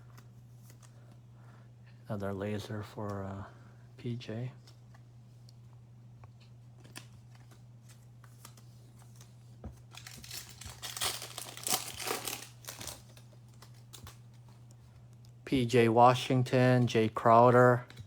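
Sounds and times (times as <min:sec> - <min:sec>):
foil wrapper tearing and crinkling: 0:09.9 - 0:14.2.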